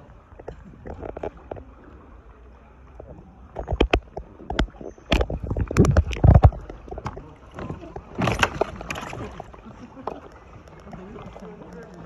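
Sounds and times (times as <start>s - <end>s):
water splashes: 0.0s - 12.0s
paddle knocking hull: 3.0s - 12.0s.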